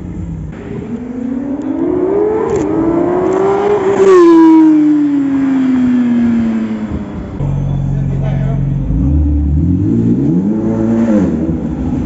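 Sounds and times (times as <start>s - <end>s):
sports car engine accelerating past: 0.5s - 7.6s.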